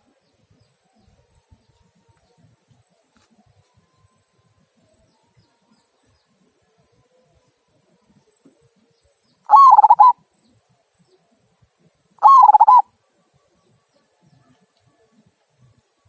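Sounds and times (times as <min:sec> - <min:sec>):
dove cooing: 0:09.5 - 0:10.2, 0:12.2 - 0:12.9.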